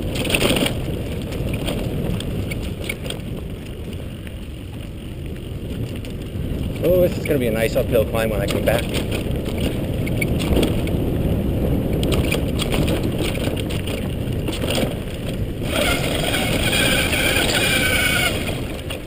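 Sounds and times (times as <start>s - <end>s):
tyre and wind rumbling: 0.0s - 19.0s
bike rattling knocks: 6.8s - 11.1s, 11.9s - 19.0s.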